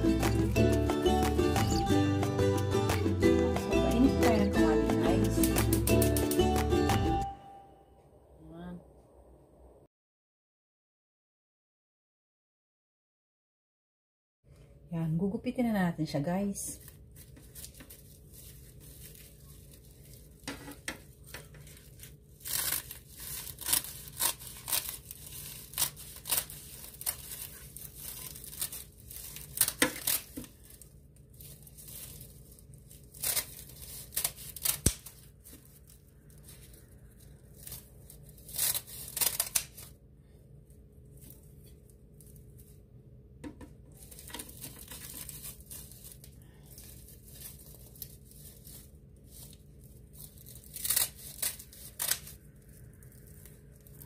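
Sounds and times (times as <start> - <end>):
scissors snipping seaweed sheets: 5.1 - 6.6, 22.4 - 30.5
crackling and rustling of seaweed: 16.5 - 39.9, 43.9 - 54.0.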